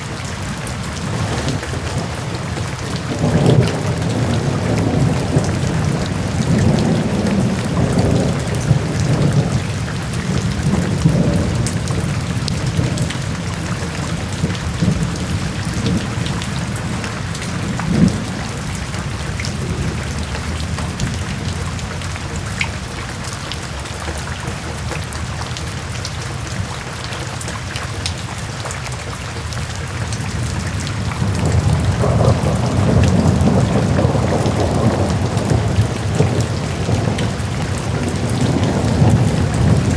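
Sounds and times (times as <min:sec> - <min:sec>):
low rolling thunder: 0:00.0 - 0:23.0, 0:30.1 - 0:39.9
heavy rain: 0:00.0 - 0:39.9.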